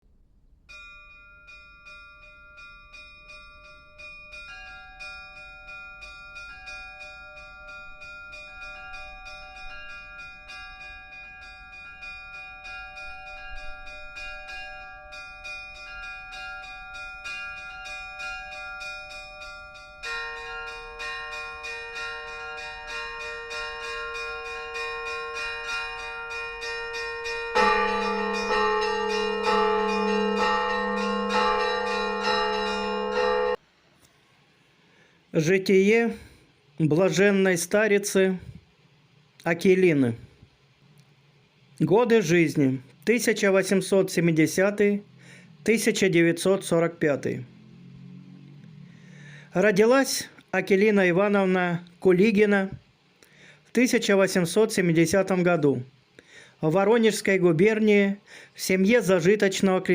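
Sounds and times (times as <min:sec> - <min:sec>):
church bells pealing: 0:00.7 - 0:33.6, 0:43.2 - 0:51.4
deep bell ringing: 0:00.7 - 0:33.6, 0:43.3 - 0:49.8
heavier bell ringing: 0:00.7 - 0:33.6, 0:43.1 - 0:51.5.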